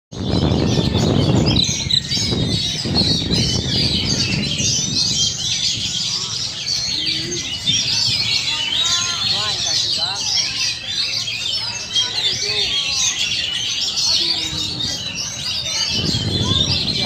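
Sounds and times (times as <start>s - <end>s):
low rumbling noise: 0.2s - 10.2s
bird whistles and trills: 0.2s - 17.0s.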